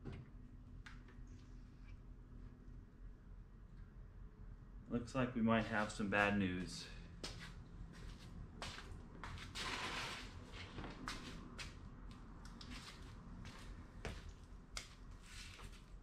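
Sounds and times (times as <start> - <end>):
footsteps on garage floor: 5.7 - 15.8.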